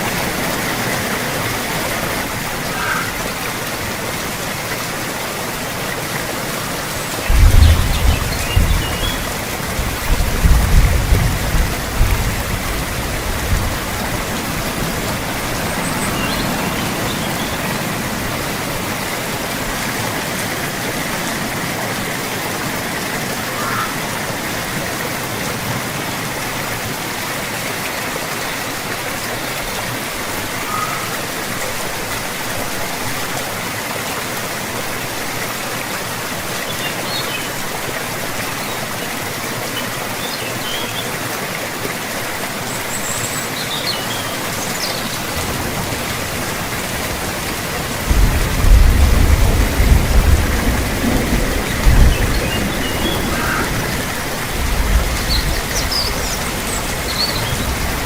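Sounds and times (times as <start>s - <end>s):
steady rain: 0.0s - 58.0s
low thunder rumble: 7.3s - 15.5s, 45.4s - 57.0s.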